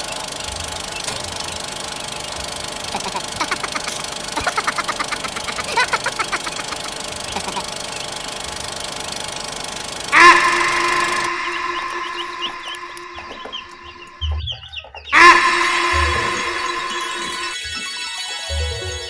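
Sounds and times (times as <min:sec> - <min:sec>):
mechanical hum: 0:00.0 - 0:19.0
rapid rattling ticks: 0:00.0 - 0:19.0
rooster crowing: 0:10.1 - 0:14.4, 0:15.1 - 0:17.5.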